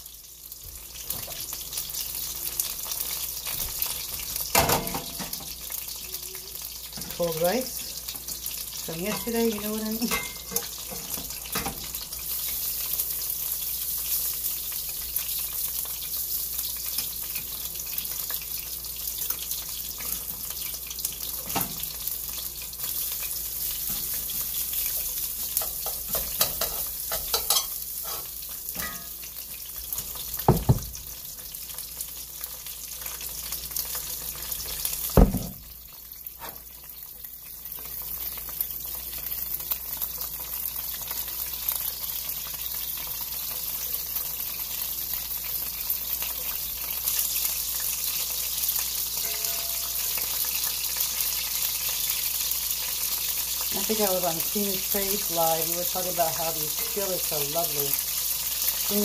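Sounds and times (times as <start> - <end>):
beef sizzling in skillet: 0.0 - 59.0.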